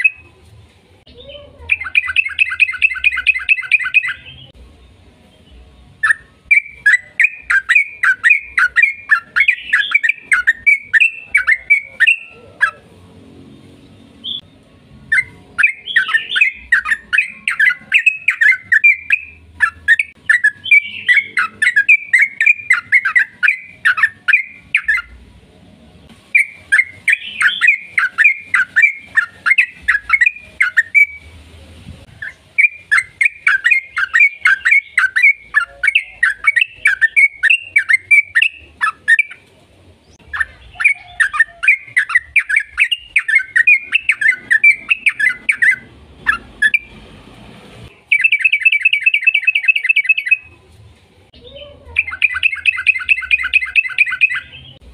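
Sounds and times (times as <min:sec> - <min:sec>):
bird song bubbling chattering notes: 0:01.7 - 0:04.5.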